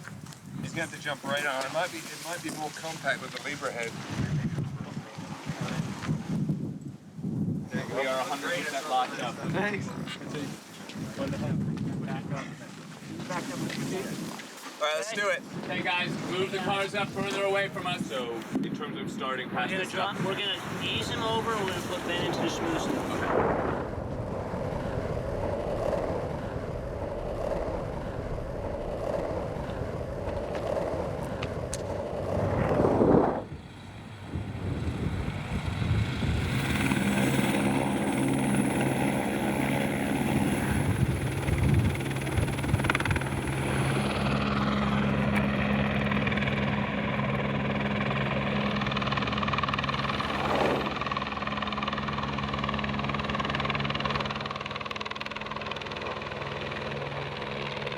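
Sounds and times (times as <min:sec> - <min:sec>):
wind: 0:00.0 - 0:57.9
engine running: 0:24.0 - 0:57.9.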